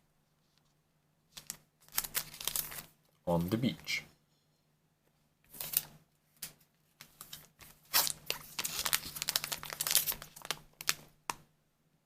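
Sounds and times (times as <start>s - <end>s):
packaging crinkling: 1.3s - 3.0s, 5.5s - 5.9s, 7.2s - 11.4s.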